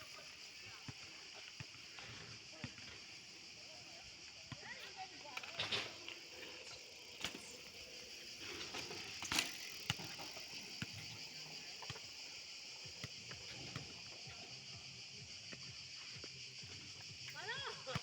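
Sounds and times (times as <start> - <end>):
insect chorus: 0.0 - 18.0.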